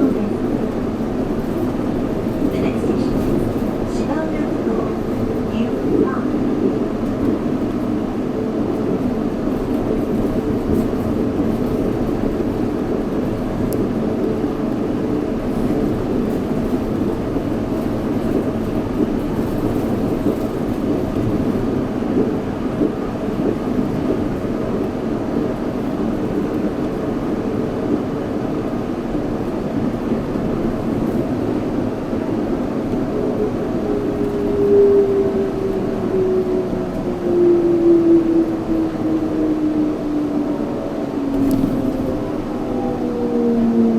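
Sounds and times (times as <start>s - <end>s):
train rumbling along guideway: 0.0s - 43.9s
whine sliding down in pitch: 41.3s - 43.9s.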